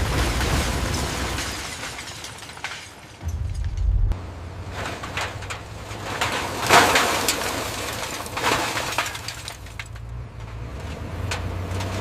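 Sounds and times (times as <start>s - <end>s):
low steady hum: 3.2s - 6.2s
scrap metal clattering: 4.6s - 10.0s.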